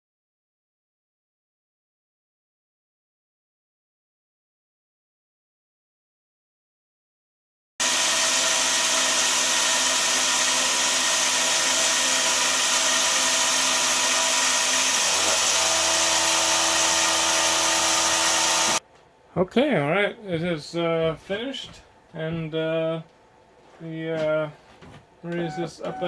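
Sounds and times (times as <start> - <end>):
milling machine cutting metal: 7.8 - 18.8.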